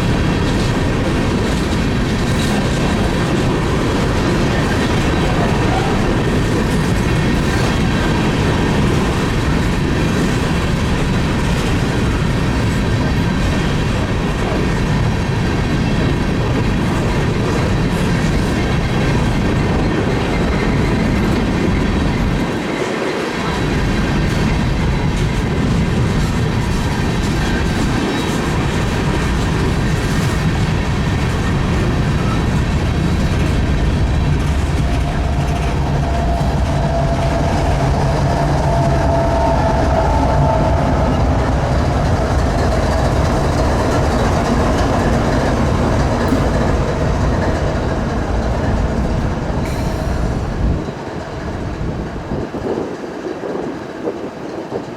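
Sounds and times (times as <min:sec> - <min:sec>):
freight train rumbling past: 0:00.0 - 0:54.9
wavering wheel squeal: 0:34.5 - 0:41.8.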